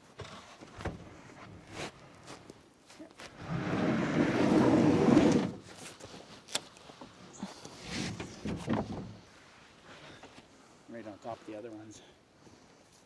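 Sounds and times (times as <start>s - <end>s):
wooden board scraping: 3.3s - 5.6s
wooden knocks and clunks: 7.9s - 9.2s.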